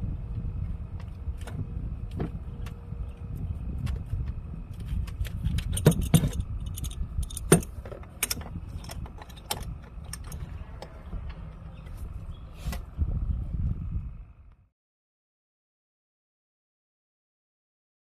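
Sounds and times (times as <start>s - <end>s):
steady low rumble: 0.0s - 14.7s
metal hand tools clinking: 5.6s - 10.4s.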